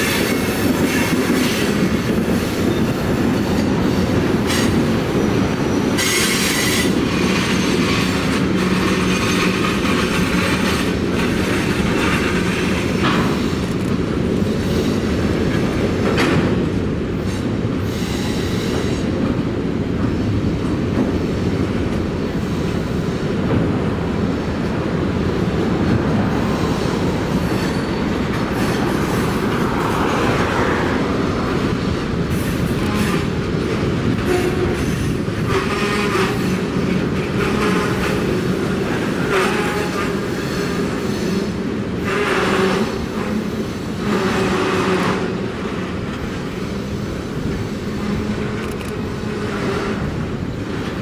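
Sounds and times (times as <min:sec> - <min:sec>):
train wheels rumbling on rails: 0:00.0 - 0:51.0
wheels clicking over rail joints: 0:05.9 - 0:14.6.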